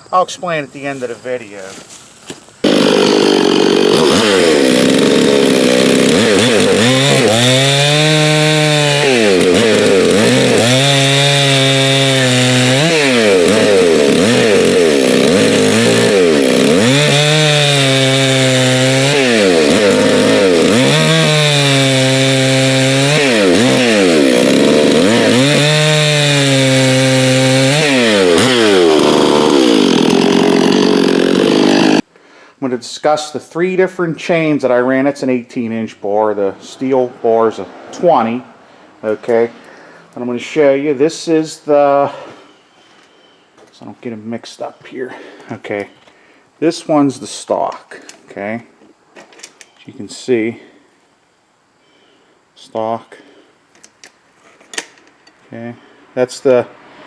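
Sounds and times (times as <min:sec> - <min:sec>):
chainsaw cutting wood: 0:02.6 - 0:32.1.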